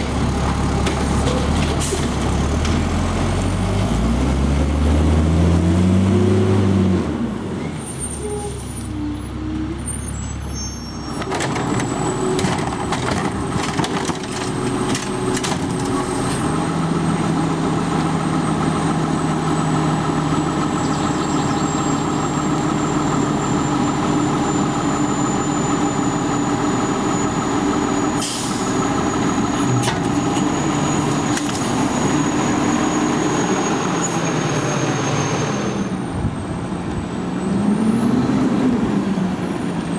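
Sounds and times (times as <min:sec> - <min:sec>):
garbage truck diesel engine running: 0:00.0 - 0:04.0, 0:10.9 - 0:37.4.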